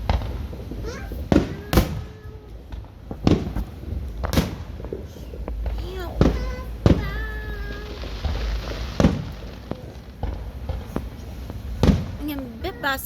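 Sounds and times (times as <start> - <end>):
small firework pops: 0.0 - 12.6
fireworks bangs with rumble: 0.0 - 13.0.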